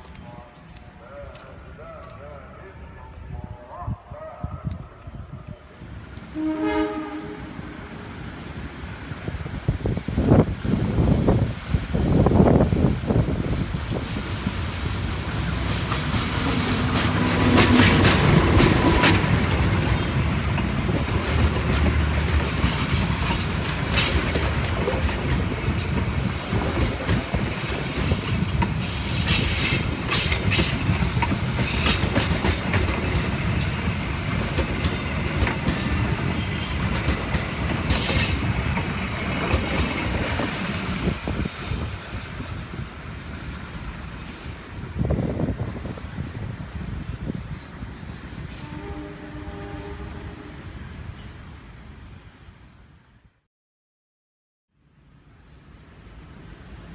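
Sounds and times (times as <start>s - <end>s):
train wheels rumbling on rail: 5.4s - 52.5s
wheels clacking over rail joints: 13.5s - 44.2s.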